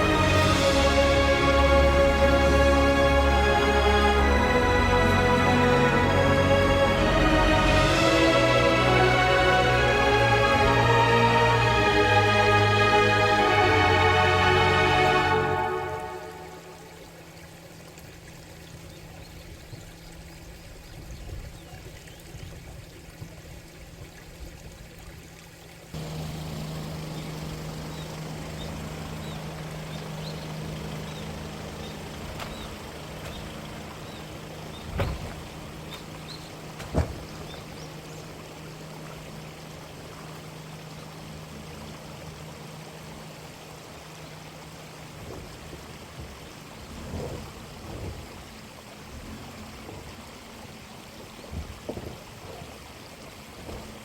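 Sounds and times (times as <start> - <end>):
low engine hum: 0.0 - 54.0
stream water running: 0.0 - 54.0
sharp knocks: 36.8 - 37.3.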